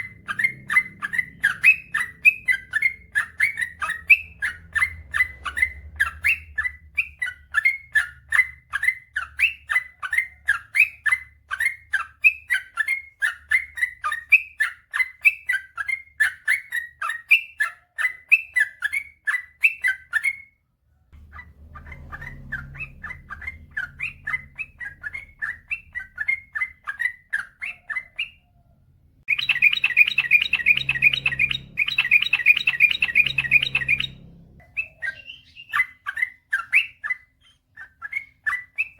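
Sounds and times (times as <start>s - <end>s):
bird rapid trill: 0.0s - 11.2s, 21.2s - 28.5s, 29.3s - 38.9s
bird chattering song: 0.0s - 20.4s, 21.2s - 28.6s, 29.3s - 38.9s.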